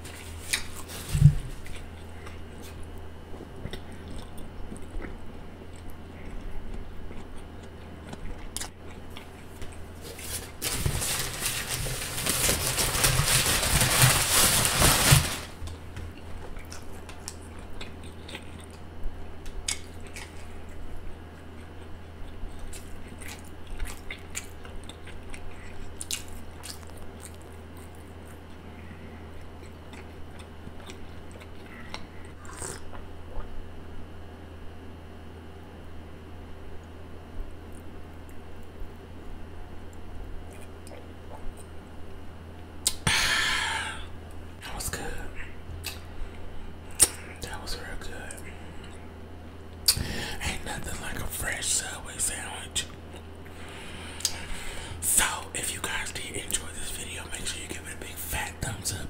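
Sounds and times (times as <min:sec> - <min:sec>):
chewing sandwich: 0:00.1 - 0:13.5, 0:16.1 - 0:33.6, 0:39.9 - 0:41.9
paper wrapper crinkling: 0:10.0 - 0:15.8.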